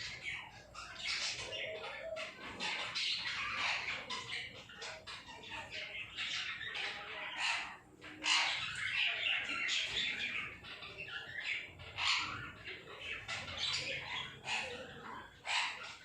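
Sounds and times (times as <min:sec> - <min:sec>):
parrot squawking and chattering: 0:00.0 - 0:16.0.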